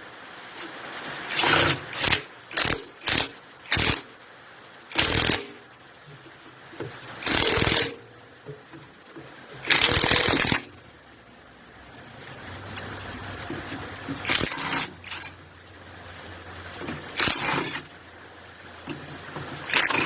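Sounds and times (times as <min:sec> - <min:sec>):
hand tools scraping engine parts: 0:01.3 - 0:04.0, 0:07.2 - 0:08.6, 0:09.2 - 0:10.7, 0:13.5 - 0:15.4, 0:16.8 - 0:17.9, 0:18.8 - 0:20.0.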